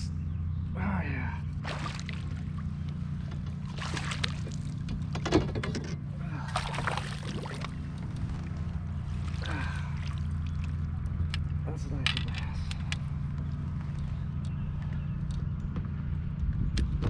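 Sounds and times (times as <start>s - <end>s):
steady low hum: 0.0s - 17.0s
water splashing and sloshing: 1.4s - 14.3s.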